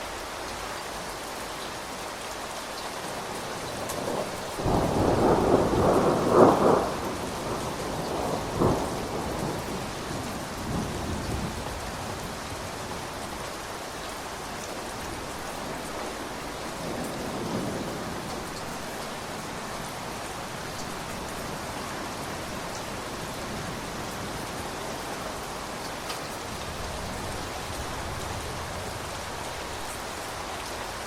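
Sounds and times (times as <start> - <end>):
steady rain: 0.0 - 31.0
thunder rumbling: 3.7 - 13.1
sharp thunder clap: 4.0 - 9.7.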